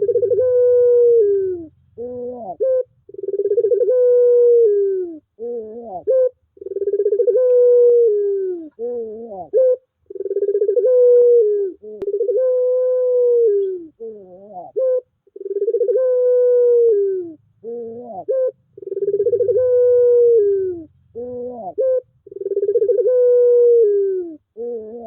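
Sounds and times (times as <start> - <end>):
dove cooing: 0.0 - 25.0.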